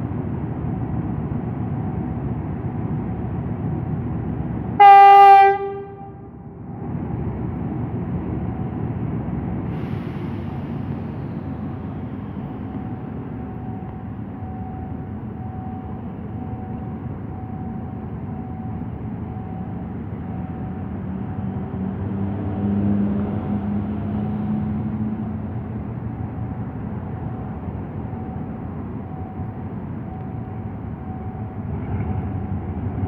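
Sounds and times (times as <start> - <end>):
steel wheels rumbling on rails: 0.0 - 33.0
train horn blast: 4.8 - 6.4.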